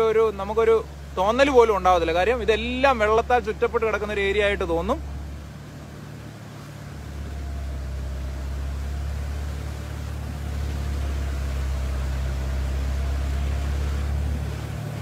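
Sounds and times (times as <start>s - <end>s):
diesel engine running: 0.0s - 15.0s
rushing water wash: 0.0s - 15.0s.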